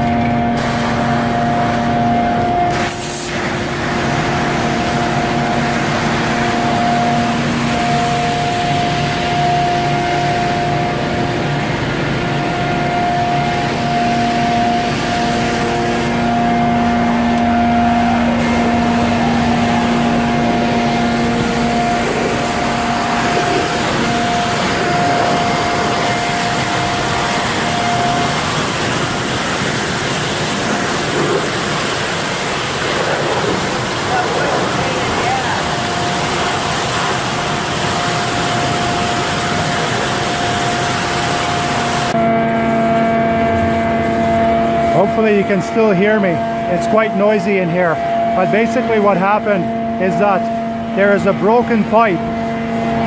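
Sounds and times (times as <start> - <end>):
vacuum truck rushing and droning: 0.0 - 36.7.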